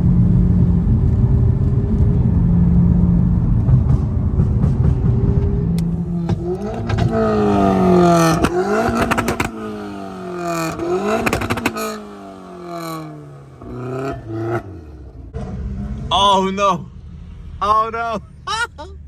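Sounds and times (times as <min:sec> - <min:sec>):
exhaust pops and crackles: 0:03.6 - 0:09.7, 0:10.5 - 0:12.0
car engine revving hard: 0:05.7 - 0:18.3.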